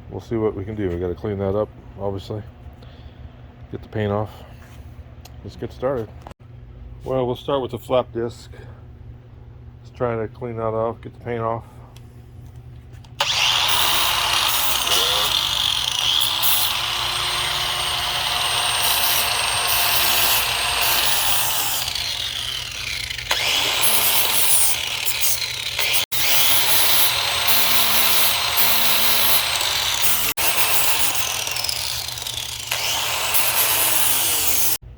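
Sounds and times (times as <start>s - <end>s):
angle grinder grinding metal: 13.2s - 34.8s.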